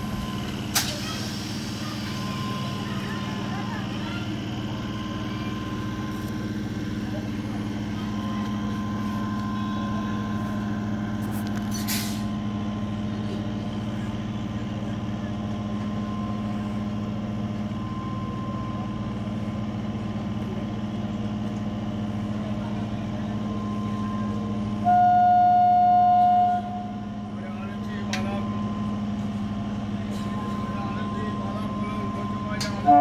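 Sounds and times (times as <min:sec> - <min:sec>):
electric train humming: 0:00.0 - 0:33.0
train horn blast: 0:24.8 - 0:27.1.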